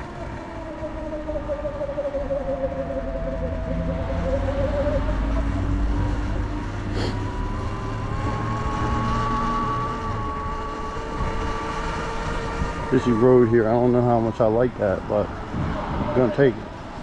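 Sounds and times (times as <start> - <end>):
electric motor whining: 0.0 - 17.0
low rumble: 0.0 - 17.0.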